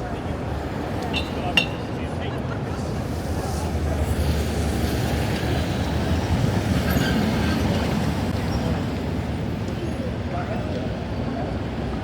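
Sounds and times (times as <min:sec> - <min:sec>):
passing vehicle rumble: 0:00.0 - 0:09.6.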